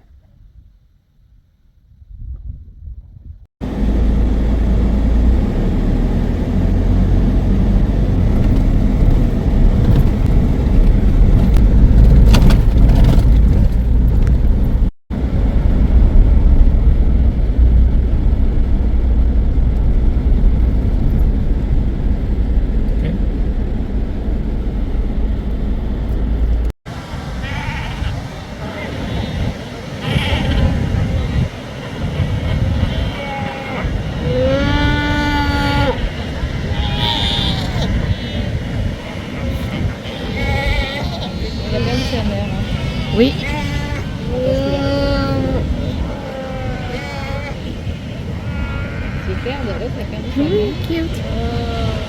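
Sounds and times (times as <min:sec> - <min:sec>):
car engine and road noise: 0:03.6 - 0:52.0.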